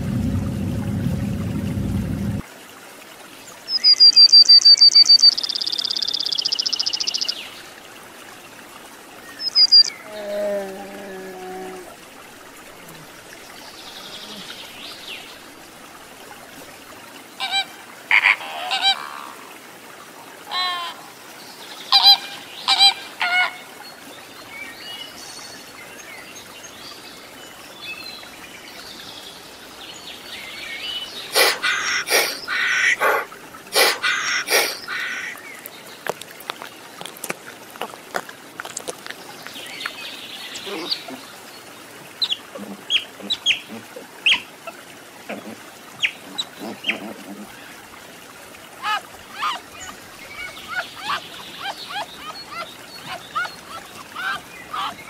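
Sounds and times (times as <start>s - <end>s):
sharp calls and clicks: 3.7s - 7.4s, 9.3s - 10.0s, 31.2s - 41.1s.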